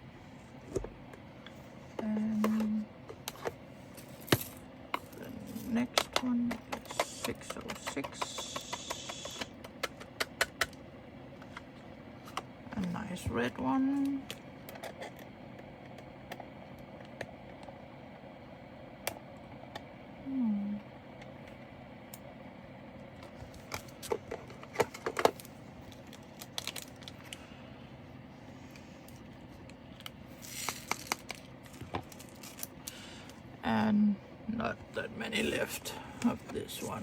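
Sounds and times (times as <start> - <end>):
faint steady hum: 0.0 - 37.0
plastic bag crinkling: 25.9 - 27.3.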